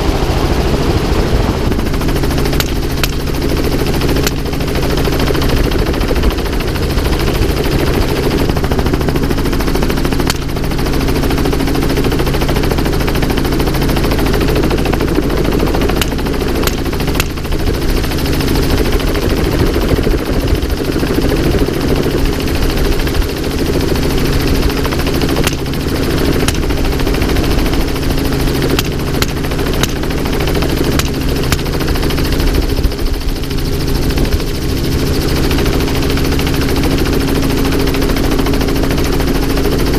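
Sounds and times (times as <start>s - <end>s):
helicopter rotor and engine: 0.0s - 39.9s
sharp cracks: 15.9s - 17.5s, 25.3s - 26.9s, 28.7s - 30.1s.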